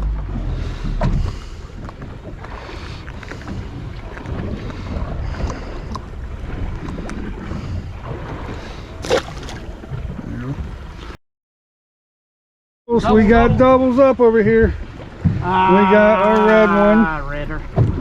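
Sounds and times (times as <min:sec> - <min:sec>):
sea noise: 0:01.1 - 0:11.2.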